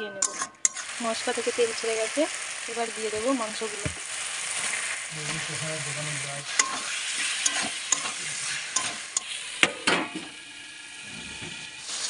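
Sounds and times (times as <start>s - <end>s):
metal spatula scraping a pan: 0.0s - 1.2s, 4.2s - 10.4s
chicken sizzling in hot oil: 0.2s - 12.0s.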